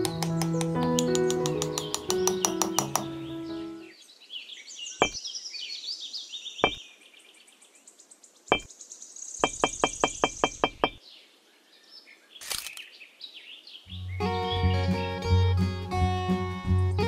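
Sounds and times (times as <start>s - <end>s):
small clay bricks clicking: 0.0s - 3.1s
birds chirping: 0.0s - 15.1s.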